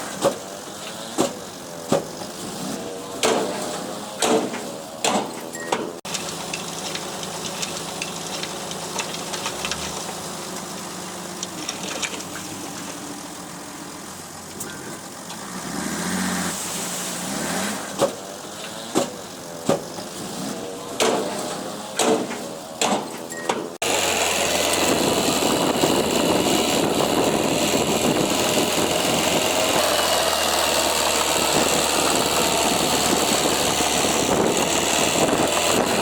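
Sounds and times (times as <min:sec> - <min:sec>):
heavy machine engine running: 0:06.1 - 0:16.3, 0:18.2 - 0:36.0.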